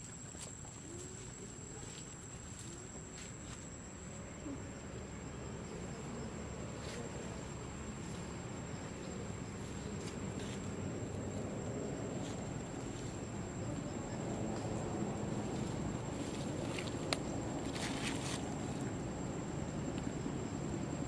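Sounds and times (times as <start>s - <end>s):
high insect whine: 0.0s - 21.0s.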